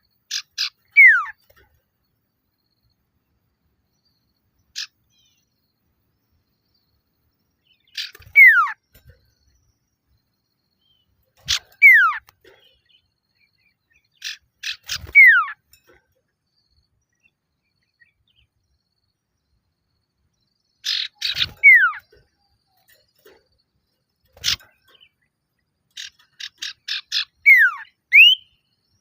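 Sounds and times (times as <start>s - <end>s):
bird calling with falling whistle: 0.9s - 1.4s, 8.1s - 8.8s, 27.4s - 28.6s.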